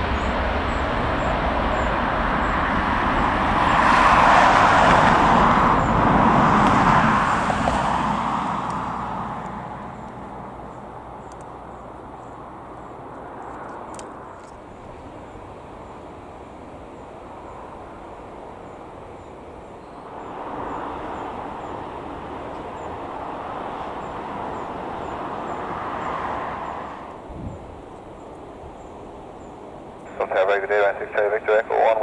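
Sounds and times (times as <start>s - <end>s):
distant jet engine rushing: 0.0s - 32.0s.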